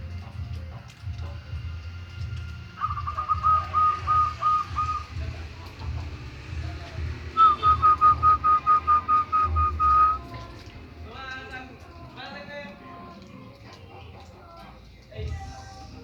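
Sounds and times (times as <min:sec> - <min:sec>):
bird whistling repeated notes: 0:02.8 - 0:05.3, 0:07.3 - 0:10.4.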